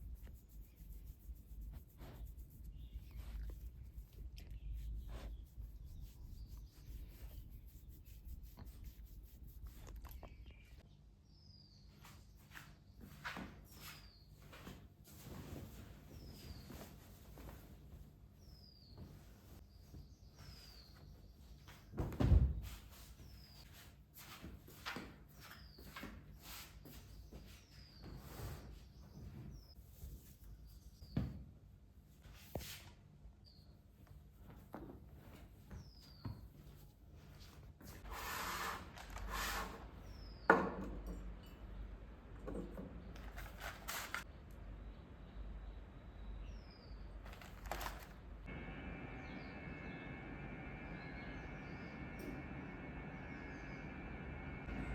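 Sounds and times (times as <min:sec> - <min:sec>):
rustling: 0:43.2 - 0:44.3, 0:47.2 - 0:48.2.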